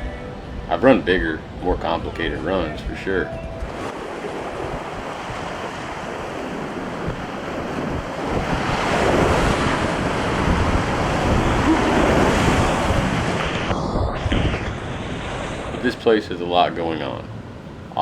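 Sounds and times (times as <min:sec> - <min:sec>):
whitewater rapids roaring: 0:00.0 - 0:13.8
wind noise on microphone: 0:00.0 - 0:16.0.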